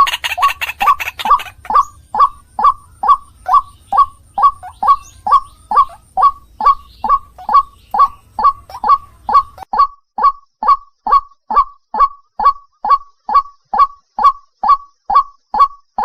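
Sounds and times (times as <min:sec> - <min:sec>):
waterhen calling: 0:00.0 - 0:10.3.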